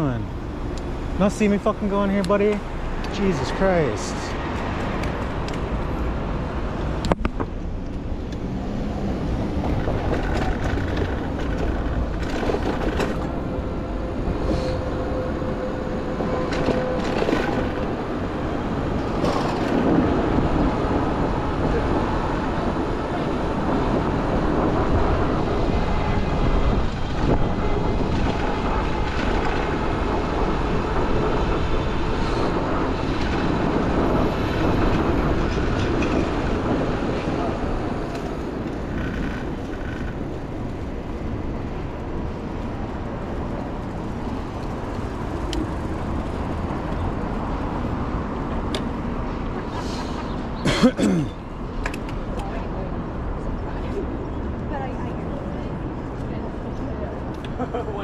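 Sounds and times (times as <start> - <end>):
city street traffic: 0.0 - 58.0
streetcar rumbling on rails: 0.0 - 58.0.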